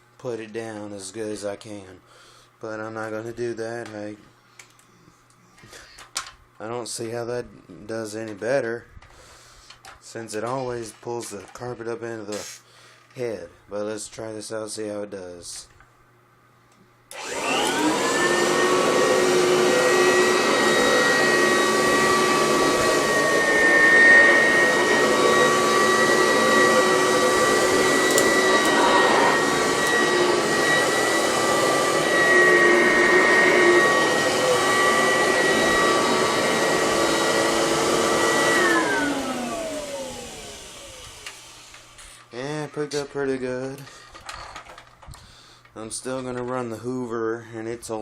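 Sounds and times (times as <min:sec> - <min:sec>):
vacuum motor winding down: 0:17.1 - 0:42.0
vacuum cleaner running: 0:17.1 - 0:42.2.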